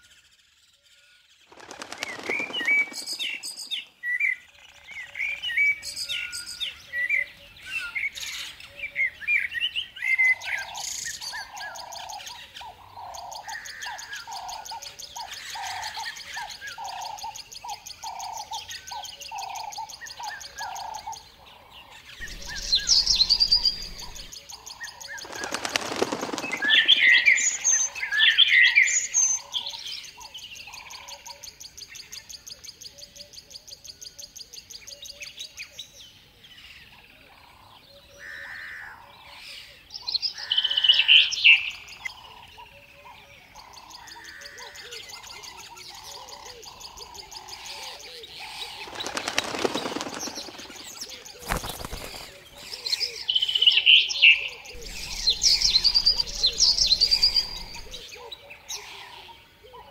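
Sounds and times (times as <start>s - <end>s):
small birds chirping: 0.0s - 33.9s, 40.0s - 59.9s
wings flapping: 1.5s - 3.9s, 22.2s - 24.4s, 25.0s - 28.1s, 48.4s - 52.6s, 54.7s - 58.0s.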